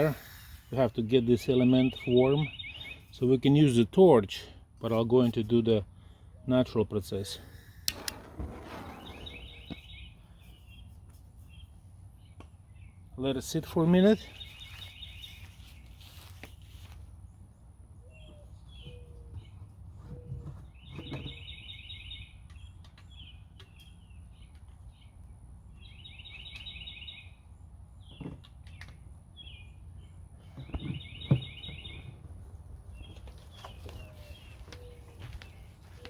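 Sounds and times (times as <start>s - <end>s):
songbird trilling and chirping: 1.4s - 3.6s, 20.8s - 27.4s, 28.0s - 32.3s.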